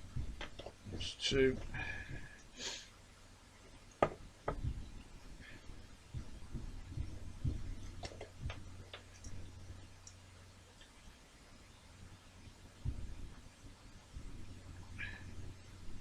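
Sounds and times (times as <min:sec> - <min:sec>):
faint low hum: 0:00.0 - 0:16.0
light taps and thin clicks: 0:00.2 - 0:02.5, 0:06.1 - 0:10.2.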